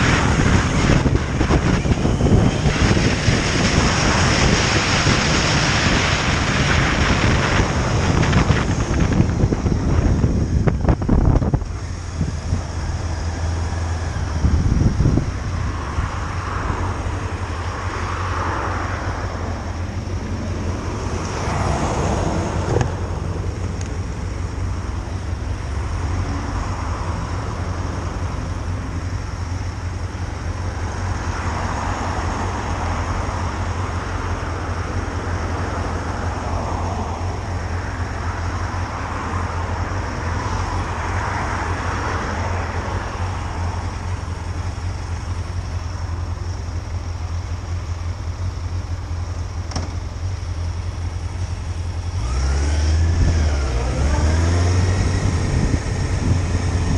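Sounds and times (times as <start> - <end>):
wind on microphone: 0.0 - 23.6, 53.0 - 56.9
rushing noise: 0.0 - 48.1
motorcycle engine rumble: 0.0 - 56.9.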